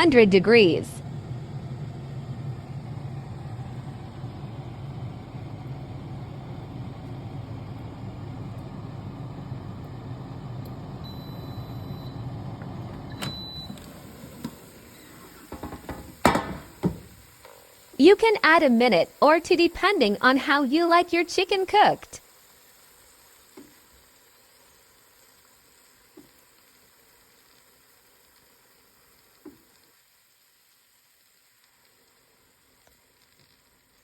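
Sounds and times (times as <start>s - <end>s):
air fryer fan hum: 0.0s - 31.2s.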